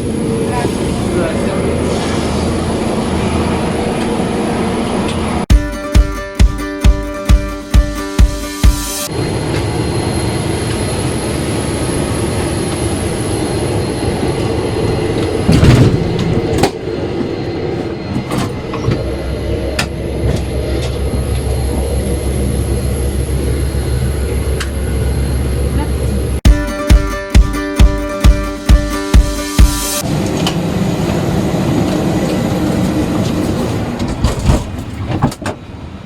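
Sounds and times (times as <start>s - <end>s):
airliner cabin rumble and hum: 0.0s - 5.5s, 9.1s - 26.4s, 30.0s - 36.0s
guitar music: 5.5s - 9.1s, 26.4s - 30.0s.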